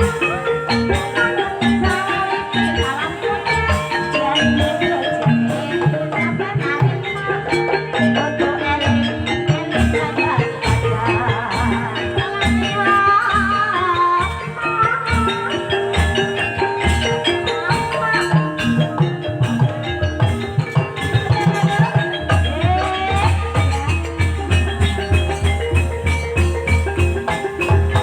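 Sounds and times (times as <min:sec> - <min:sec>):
drum beats: 0:00.0 - 0:28.0
metallophones ringing melody: 0:00.0 - 0:28.0
wavering high melodic line: 0:00.0 - 0:28.0.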